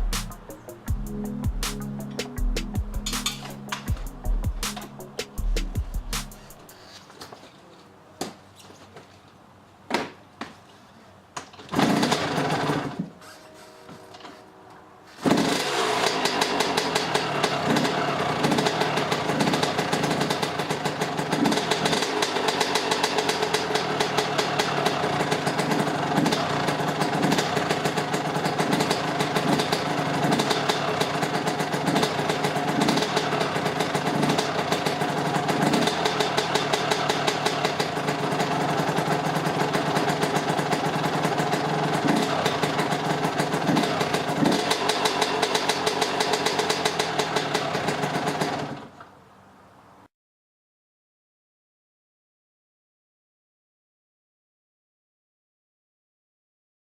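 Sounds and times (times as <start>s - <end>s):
dirt bike engine running: 0.0s - 6.5s, 15.3s - 48.8s.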